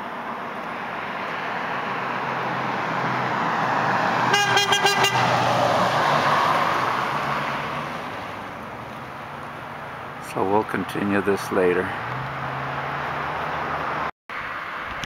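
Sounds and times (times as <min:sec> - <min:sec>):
vehicle passing by: 0:00.3 - 0:14.8
pulsing horn blast: 0:04.3 - 0:05.4.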